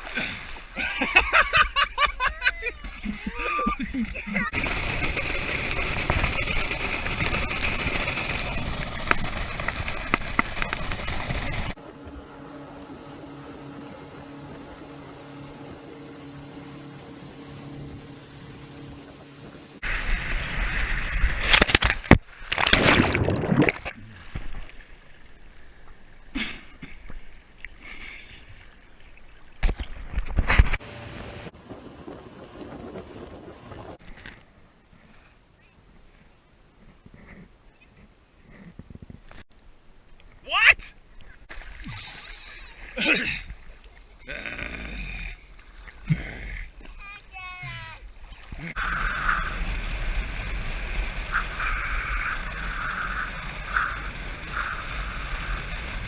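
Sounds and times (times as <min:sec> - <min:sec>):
rushing wind and water: 0:00.0 - 0:34.0, 0:45.7 - 0:56.0
motorboat engine: 0:04.4 - 0:20.0, 0:30.7 - 0:34.0, 0:48.5 - 0:56.0.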